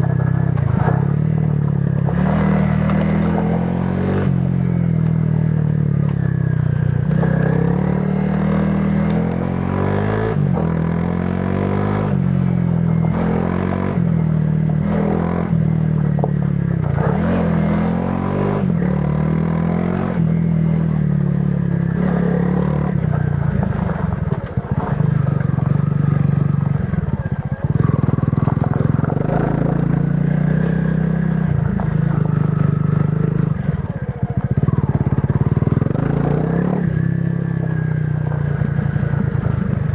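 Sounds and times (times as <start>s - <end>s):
motorcycle engine revving: 0.0s - 39.9s
motorcycle knocks and rattles: 23.0s - 30.3s.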